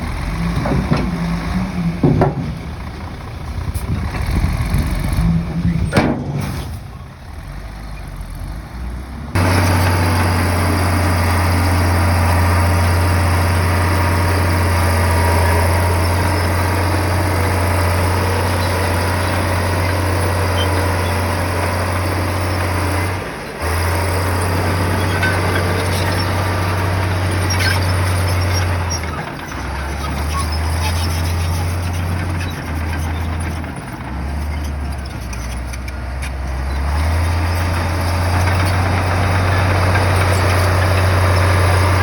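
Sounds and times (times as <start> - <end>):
bulldozer diesel engine drone: 0.0 - 42.0.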